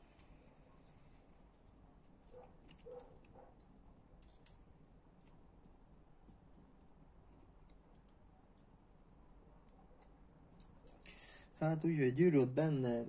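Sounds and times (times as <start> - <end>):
faint metal clicks and taps: 0.1 - 4.6, 5.2 - 8.8.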